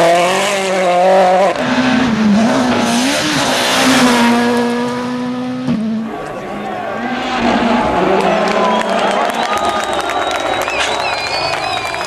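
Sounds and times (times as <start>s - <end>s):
rally car engine at high revs: 0.0s - 9.0s.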